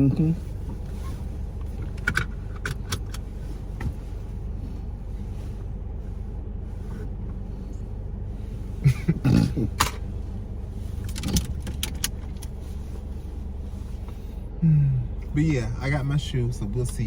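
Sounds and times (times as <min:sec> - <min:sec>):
car engine hum inside cabin: 0:00.0 - 0:17.0
sharp clicks and rattles: 0:01.6 - 0:03.9, 0:11.0 - 0:12.6.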